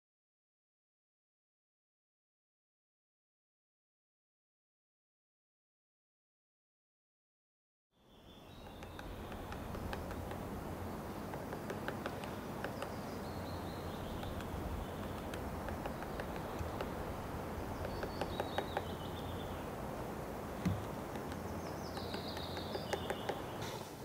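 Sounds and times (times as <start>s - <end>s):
small bird singing: 8.0s - 23.8s
steady low rumble: 8.5s - 11.4s, 12.2s - 22.4s.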